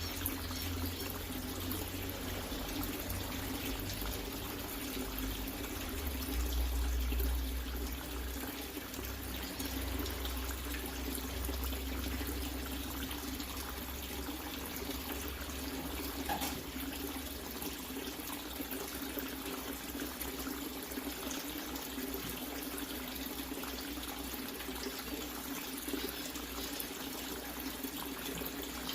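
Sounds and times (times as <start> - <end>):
water splashing into a tank: 0.0 - 28.9.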